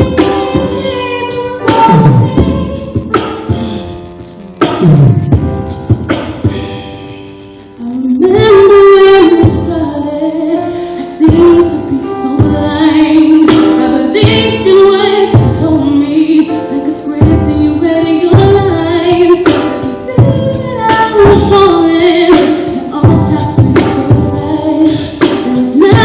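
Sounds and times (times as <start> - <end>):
woman singing: 0.0 - 3.2, 7.8 - 26.0
percussive beat: 0.0 - 7.6.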